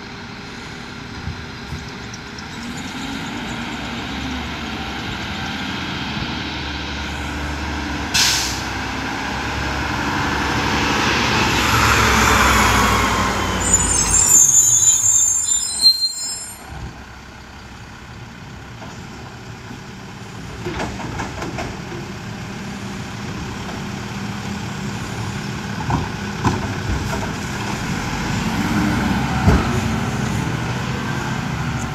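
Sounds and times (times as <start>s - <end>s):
garbage truck diesel engine: 0.0s - 31.9s
air brakes hissing: 8.1s - 8.8s
high brake squeals: 13.6s - 16.7s.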